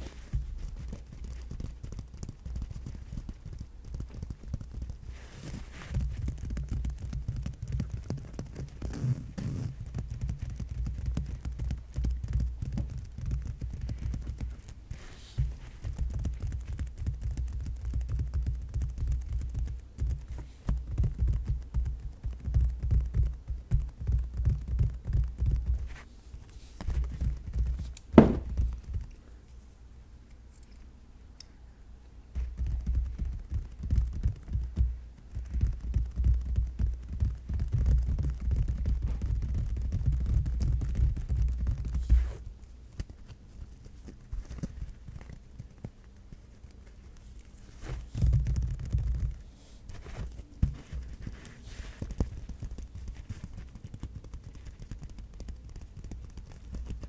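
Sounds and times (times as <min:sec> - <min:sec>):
sharp loud knock: 0:28.2 - 0:28.6.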